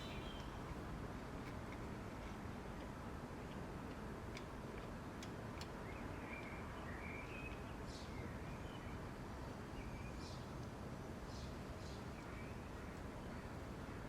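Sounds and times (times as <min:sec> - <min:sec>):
faint bird chirps: 0:00.0 - 0:00.6
outdoor background noise: 0:00.0 - 0:14.0.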